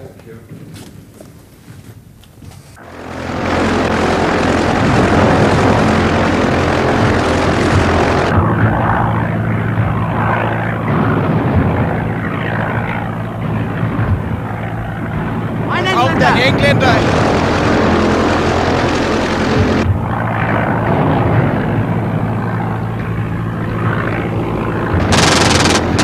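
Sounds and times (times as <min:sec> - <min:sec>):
loud rushing noise: 0:02.8 - 0:08.4, 0:15.7 - 0:20.0, 0:25.0 - 0:26.0
propeller aircraft engine: 0:02.8 - 0:26.0.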